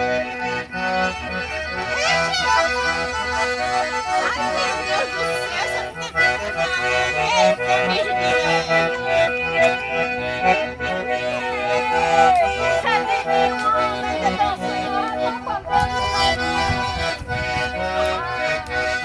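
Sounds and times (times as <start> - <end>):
accordion playing lively tune: 0.0 - 19.0
rhythmic bass line: 9.4 - 19.0.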